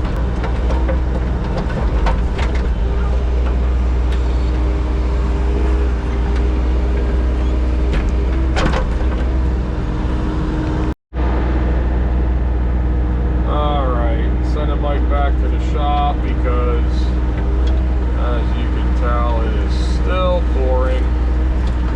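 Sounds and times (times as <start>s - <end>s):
machine clunks: 7.8s - 9.5s
machine engine running: 11.2s - 21.9s.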